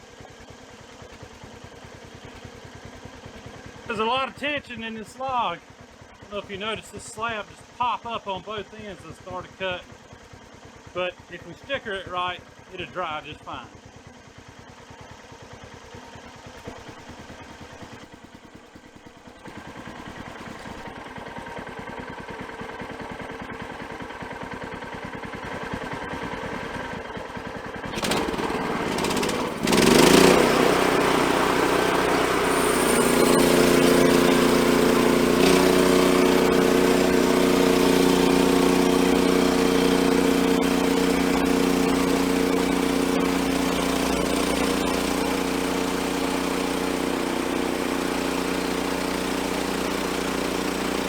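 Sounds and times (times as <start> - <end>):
sawmill gasoline engine revving: 16.4 - 21.1, 24.2 - 51.0.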